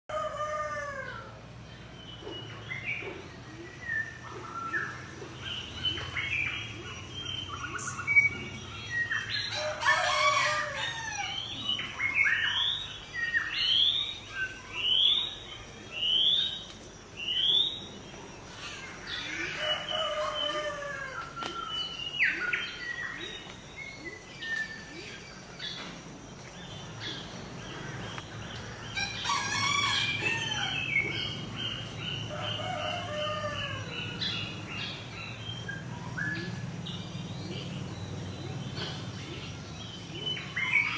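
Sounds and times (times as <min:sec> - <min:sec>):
birds chirping and calling: 0:00.1 - 0:40.9
rooster crowing: 0:09.5 - 0:11.4, 0:29.0 - 0:31.3, 0:32.3 - 0:34.4.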